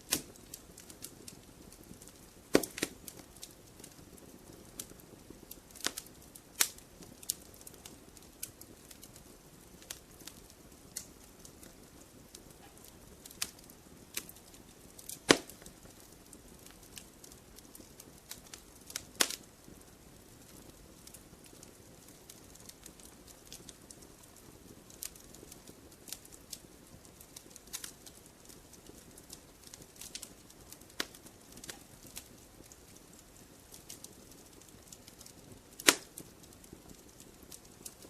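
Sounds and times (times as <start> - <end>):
campfire crackling and popping: 0.0 - 38.0
soft low fire hiss: 0.0 - 38.0.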